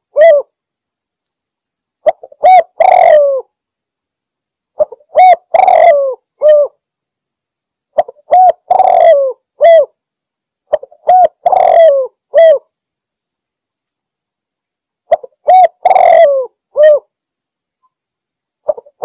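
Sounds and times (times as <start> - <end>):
dove cooing: 0.0 - 0.5, 2.0 - 3.5, 4.8 - 6.8, 8.0 - 9.9, 10.7 - 12.7, 15.1 - 17.1, 18.7 - 19.0.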